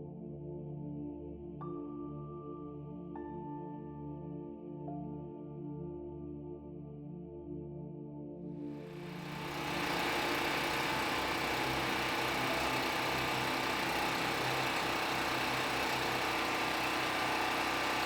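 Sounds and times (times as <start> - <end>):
small pump engine running: 8.9 - 18.0.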